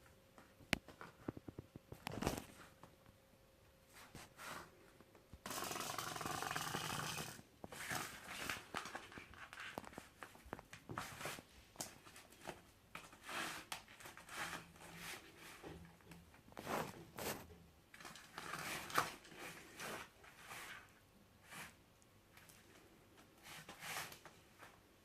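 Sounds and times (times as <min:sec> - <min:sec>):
scratchy clicks and scrabbling: 0:05.5 - 0:10.6.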